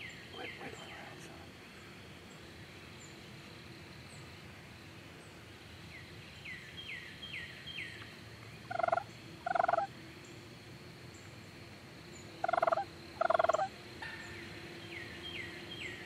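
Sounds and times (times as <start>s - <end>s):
turkey gobbling: 8.7s - 9.9s, 12.4s - 14.2s
faint high bird chirps: 12.2s - 16.0s.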